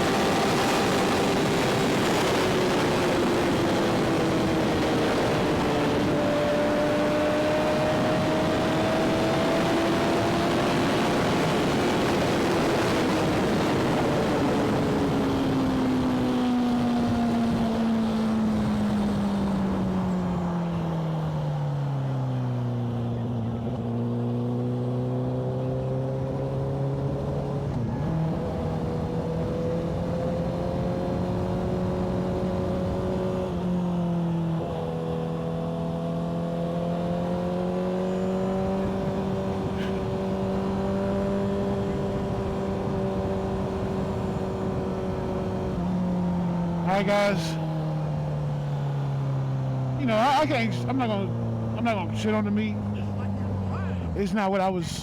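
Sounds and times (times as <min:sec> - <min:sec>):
wind rushing over microphone: 0:00.0 - 0:21.3, 0:26.0 - 0:35.0, 0:37.3 - 0:48.5
motorcycle engine: 0:00.0 - 0:55.0.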